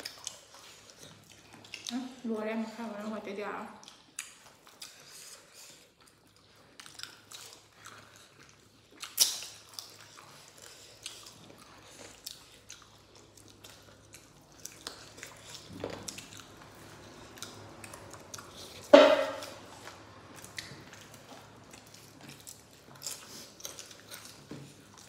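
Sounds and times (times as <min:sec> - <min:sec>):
people chewing and biting food: 0:00.0 - 0:02.4, 0:03.7 - 0:25.0
wet mouth clicks and smacks: 0:03.8 - 0:05.3, 0:09.0 - 0:10.0.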